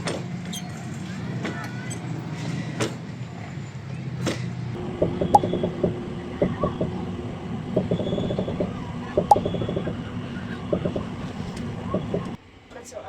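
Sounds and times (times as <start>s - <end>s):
mechanical rattling and creaking: 4.8s - 12.4s
steady low rumble: 4.8s - 12.4s.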